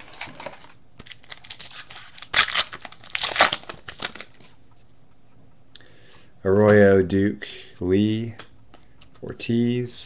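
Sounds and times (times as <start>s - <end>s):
foil wrapper tearing and crinkling: 1.0s - 4.4s.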